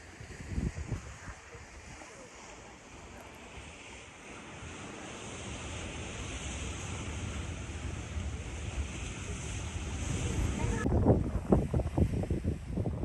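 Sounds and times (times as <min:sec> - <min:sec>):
surf washing on beach: 0:00.0 - 0:13.0
wind gusting on microphone: 0:00.0 - 0:13.0.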